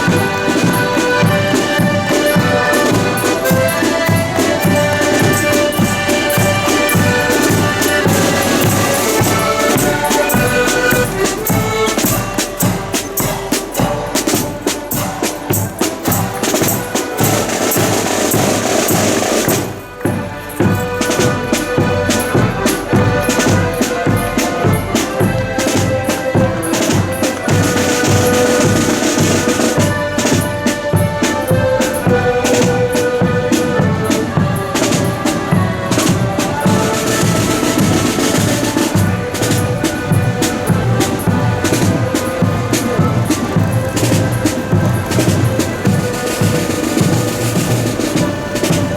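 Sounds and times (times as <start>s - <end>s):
accordions playing a tune: 0.0s - 48.9s
snare drums: 0.0s - 48.9s.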